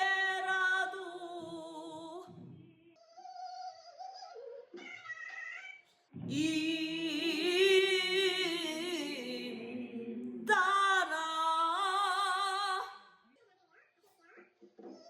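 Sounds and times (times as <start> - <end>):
woman singing unaccompanied: 0.0 - 2.3, 6.2 - 13.1.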